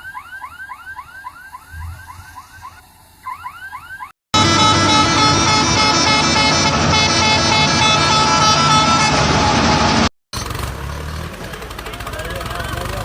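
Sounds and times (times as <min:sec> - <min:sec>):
loud horn tones: 0:04.4 - 0:10.1.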